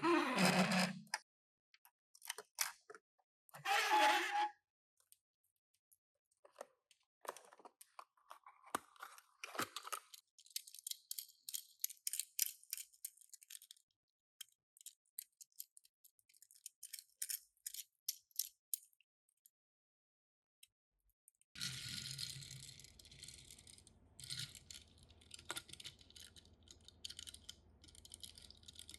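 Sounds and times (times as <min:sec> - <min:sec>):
small clicks: 0:21.3 - 0:28.9.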